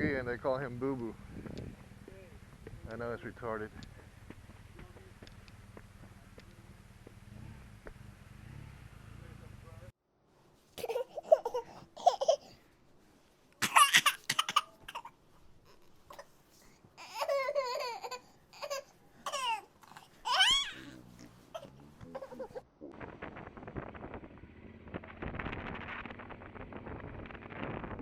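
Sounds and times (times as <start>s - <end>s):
high-pitched voice laughing and babbling: 17.0s - 20.9s, 21.6s - 23.0s.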